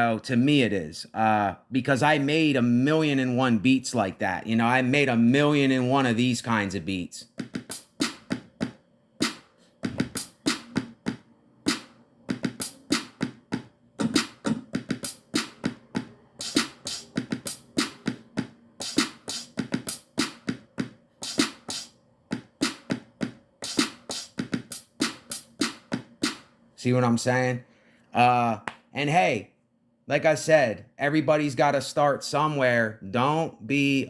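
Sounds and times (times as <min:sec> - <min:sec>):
programmed drum beat: 0:07.2 - 0:26.4.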